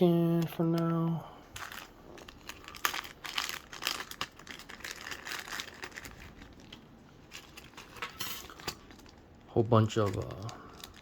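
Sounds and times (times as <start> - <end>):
packaging crinkling and rustling: 0.2 - 11.0.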